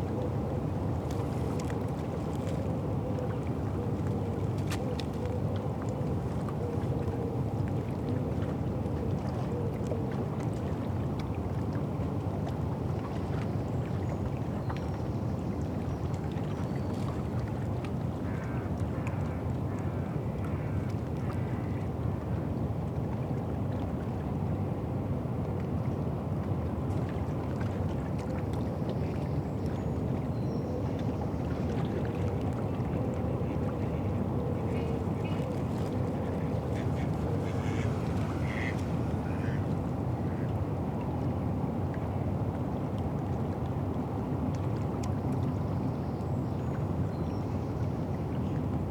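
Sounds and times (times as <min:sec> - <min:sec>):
boat engine droning: 0:35.7 - 0:40.4.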